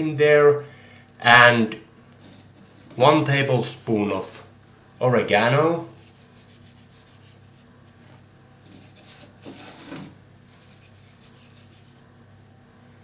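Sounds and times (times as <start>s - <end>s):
dried herbs rustling with spoon: 4.8s - 8.1s, 10.4s - 12.3s.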